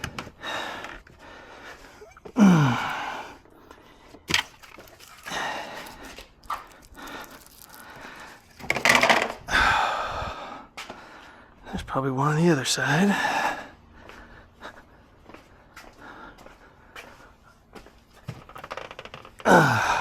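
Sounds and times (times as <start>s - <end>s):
man breathing heavily: 0.0s - 8.7s, 9.4s - 12.0s, 12.8s - 18.3s, 19.4s - 20.0s
hissing breaths or rubbing: 0.3s - 8.7s
man grunting sigh: 2.0s - 3.3s, 19.5s - 20.0s.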